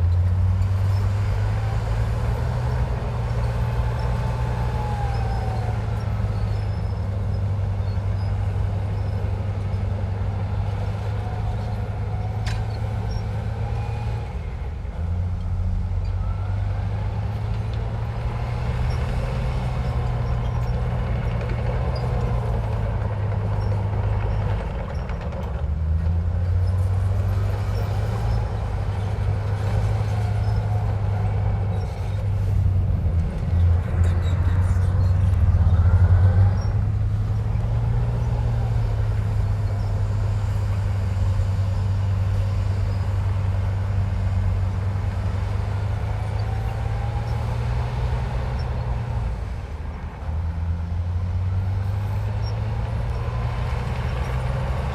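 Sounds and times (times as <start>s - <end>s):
bulldozer diesel engine running: 0.0s - 54.9s
faint wavering squeaks: 2.6s - 9.3s, 27.4s - 41.2s.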